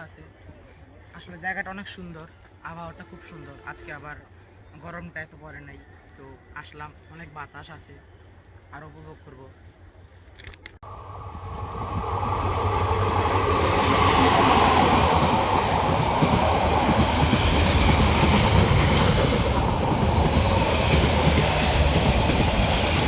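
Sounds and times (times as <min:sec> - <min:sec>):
train passing on rails: 0:10.8 - 0:23.0.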